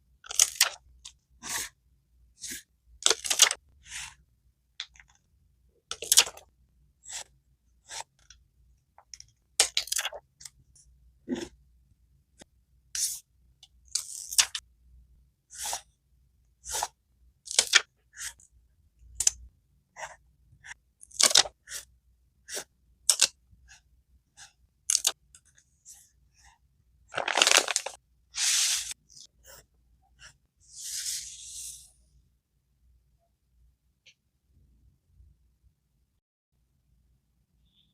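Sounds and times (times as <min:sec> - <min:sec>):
paper pages rustling and crinkling: 0:27.1 - 0:29.0.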